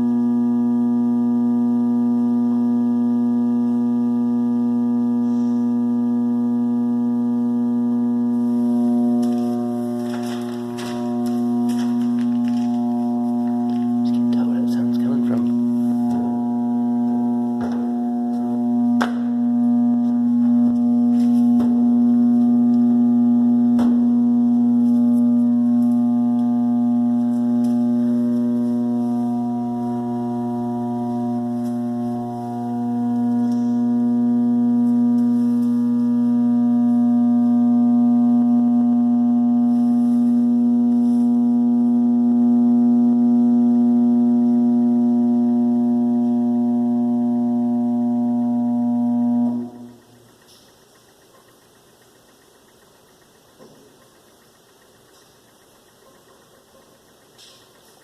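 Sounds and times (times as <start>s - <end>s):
furnace electrical buzz: 0.0s - 58.0s
sharp clicks: 49.5s - 58.0s.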